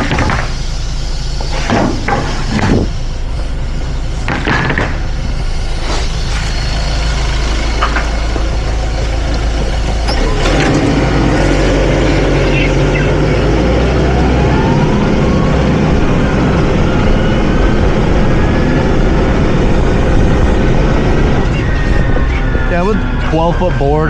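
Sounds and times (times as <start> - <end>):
sharp knocks: 0.0 - 0.6, 4.3 - 5.0
forklift engine running: 0.0 - 24.0
rising whine: 0.0 - 24.0.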